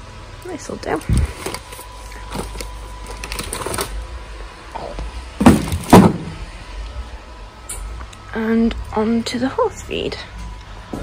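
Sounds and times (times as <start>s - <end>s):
rustling handling noise: 0.8s - 4.1s
heavy thuds in shopping trolley: 5.4s - 6.4s.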